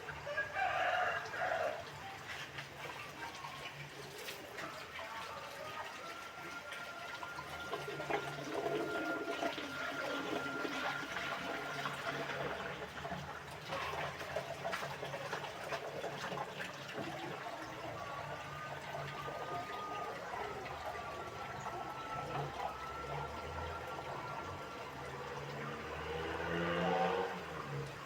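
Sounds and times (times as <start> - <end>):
water running and splashing: 0.0 - 28.0.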